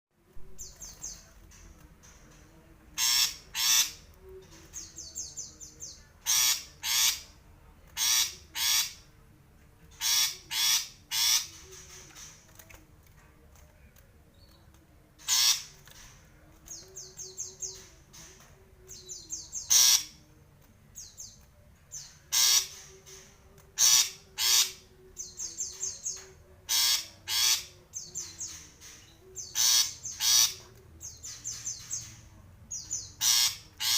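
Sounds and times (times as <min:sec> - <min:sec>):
bird harsh scratchy calls: 0:03.0 - 0:04.1, 0:06.2 - 0:07.3, 0:08.0 - 0:09.0, 0:10.0 - 0:12.4, 0:15.2 - 0:16.2, 0:19.6 - 0:20.2, 0:22.3 - 0:22.9, 0:23.8 - 0:24.8, 0:26.7 - 0:27.7, 0:28.4 - 0:30.7, 0:33.2 - 0:33.9
bird rapid chattering notes: 0:03.0 - 0:04.1, 0:04.7 - 0:07.3, 0:10.0 - 0:12.4, 0:15.2 - 0:20.2, 0:22.0 - 0:32.2, 0:32.8 - 0:33.9.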